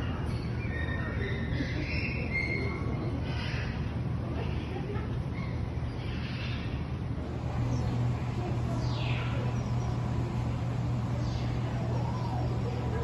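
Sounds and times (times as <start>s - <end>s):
steady low hum: 1.3s - 13.0s
small birds falling calls: 5.4s - 13.0s.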